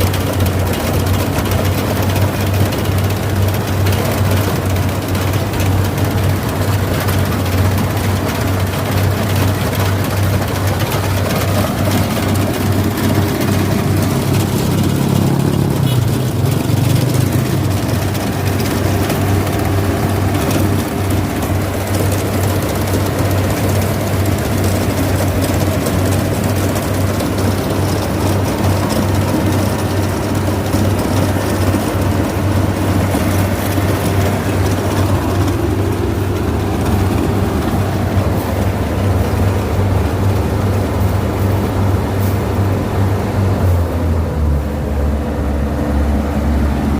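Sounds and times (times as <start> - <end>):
threshing machinery: 0.0 - 44.8
combine harvester engine drone: 0.0 - 46.9.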